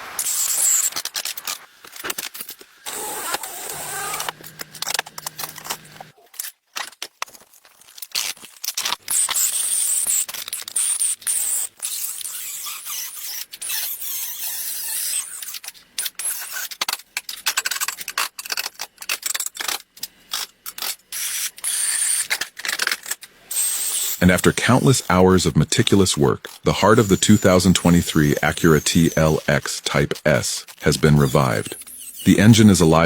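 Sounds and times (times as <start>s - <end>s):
workshop scraping and hissing: 0.0s - 6.1s, 9.1s - 16.7s, 20.3s - 33.0s.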